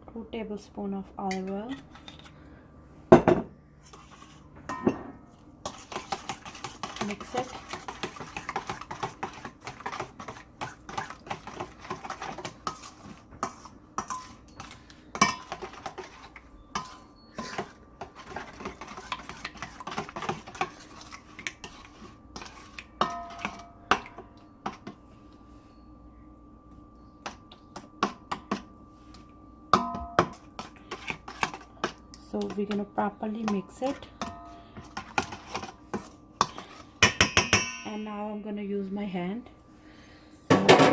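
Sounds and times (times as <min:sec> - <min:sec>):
spoon clinking and scraping bowl: 0:03.8 - 0:25.0, 0:33.5 - 0:38.0.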